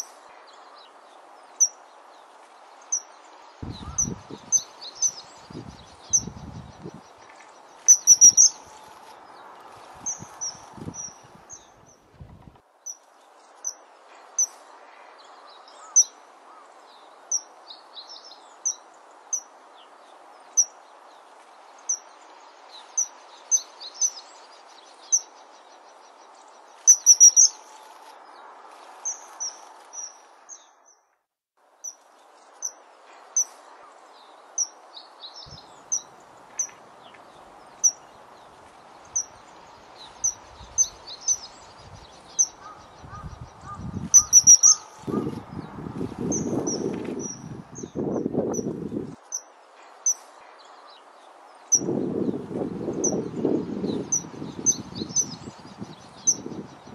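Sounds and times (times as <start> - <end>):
birds chirping: 0.0 - 12.0, 18.0 - 31.0, 31.8 - 56.9
background hiss: 31.6 - 45.1, 46.0 - 56.9.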